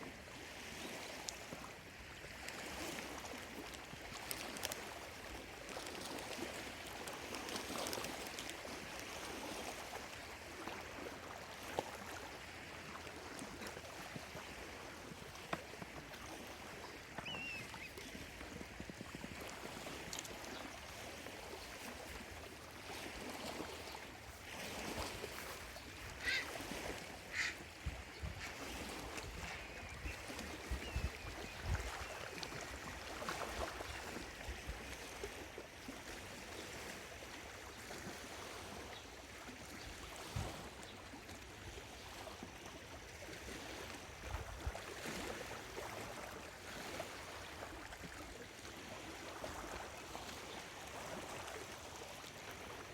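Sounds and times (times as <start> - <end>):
small waves lapping on shore: 0.0 - 52.9
bird calls: 17.2 - 18.2, 26.1 - 26.6, 27.3 - 27.6.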